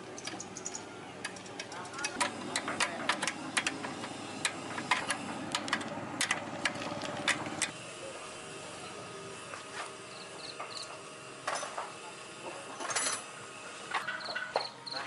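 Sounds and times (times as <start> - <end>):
hand tools clicking and knocking: 0.2 - 7.7.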